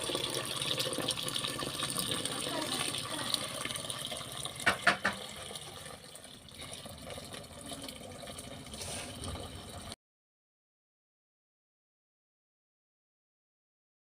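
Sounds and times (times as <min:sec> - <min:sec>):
water running: 0:00.0 - 0:10.0
sharp knocks: 0:04.6 - 0:05.2.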